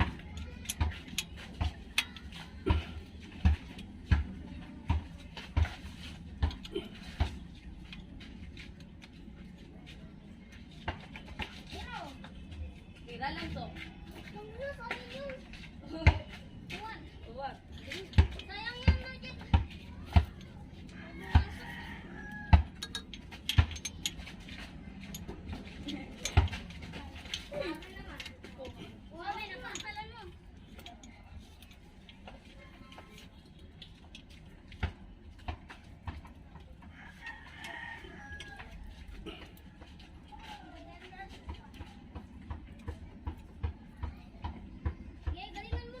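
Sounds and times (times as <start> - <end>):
metallic tool clicks and knocks: 22.6 - 24.3.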